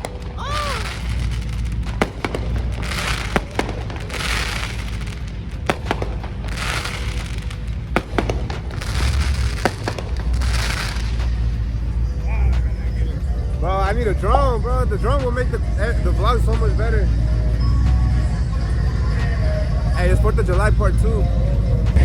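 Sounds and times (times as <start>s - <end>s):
firecracker bangs: 0.0s - 12.0s
hissing crackle: 0.0s - 18.3s
bass-heavy music: 0.0s - 22.0s.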